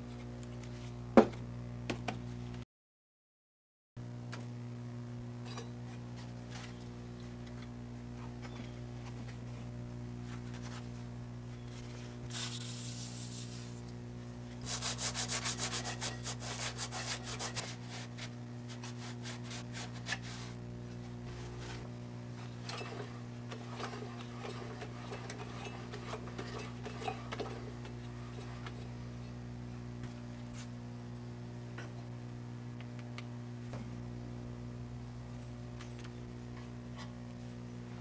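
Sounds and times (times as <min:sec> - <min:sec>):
steady low hum: 0:00.0 - 0:02.6, 0:04.0 - 0:38.0
quick rubbing strokes: 0:12.3 - 0:13.8, 0:14.6 - 0:20.6
light scraping and rubbing: 0:14.6 - 0:20.6.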